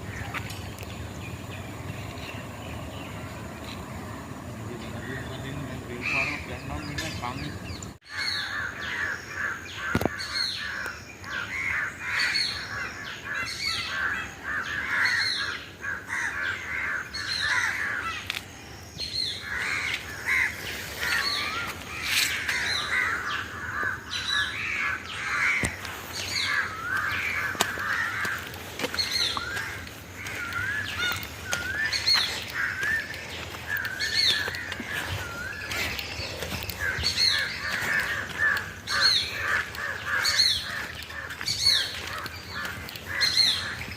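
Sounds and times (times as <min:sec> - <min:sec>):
chorus of birds calling: 0:00.0 - 0:43.9.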